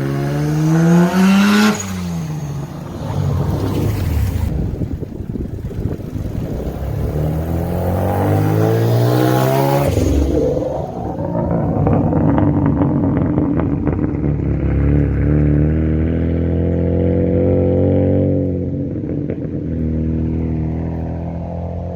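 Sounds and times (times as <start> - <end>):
engine running under load: 2.1 - 21.8.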